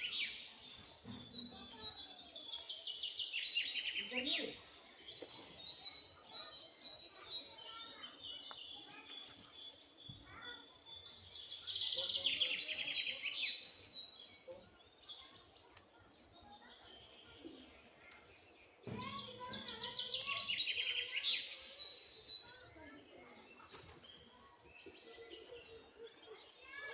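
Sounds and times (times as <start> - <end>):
high bird chirps: 0.0 - 26.9
fast rattling bird chatter: 18.0 - 25.8.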